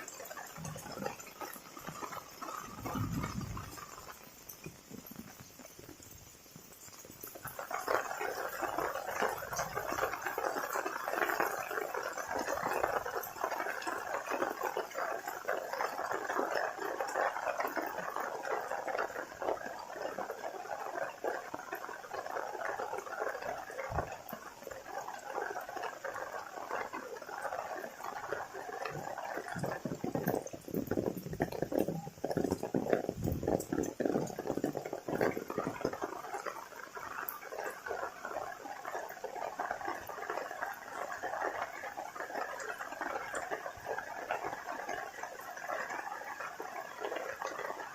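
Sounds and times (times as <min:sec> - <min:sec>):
heavy rain pattering: 0:00.0 - 0:47.9.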